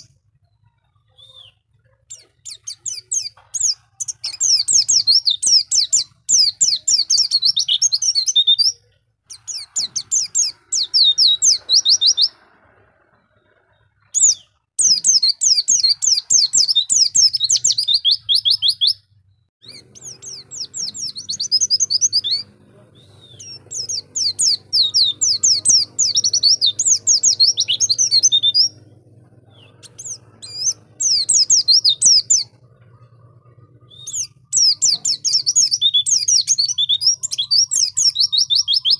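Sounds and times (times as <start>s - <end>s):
bird twittering song: 0.0s - 38.9s
faint low hum: 19.0s - 37.4s.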